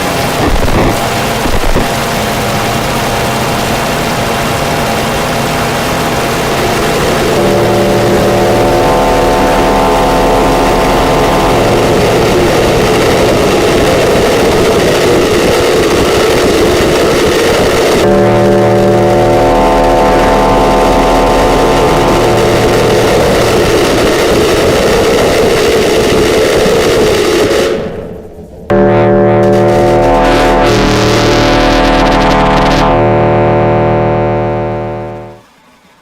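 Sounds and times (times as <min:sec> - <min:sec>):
loud jolts: 0:00.0 - 0:28.8
harsh synthesizer noise wash: 0:00.0 - 0:35.5
low sustained drone: 0:00.9 - 0:35.5.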